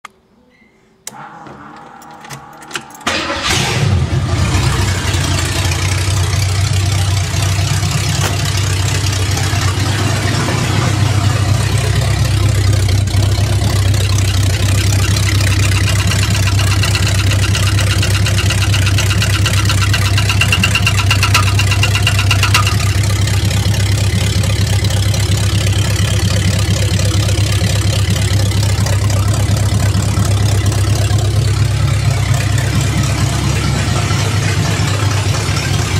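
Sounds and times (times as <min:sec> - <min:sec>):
transmission grinding noise: 0:01.1 - 0:23.6
car engine cranking and running: 0:01.1 - 0:35.9.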